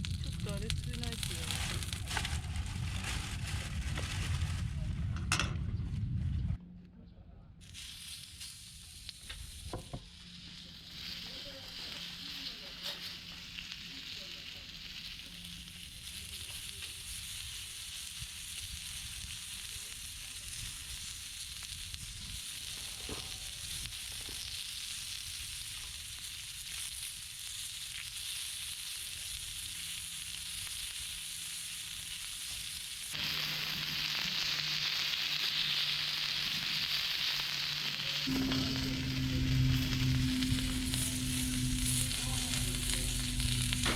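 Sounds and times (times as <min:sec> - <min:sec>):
meat sizzling on a grill: 0:00.0 - 0:03.6, 0:07.6 - 0:43.9.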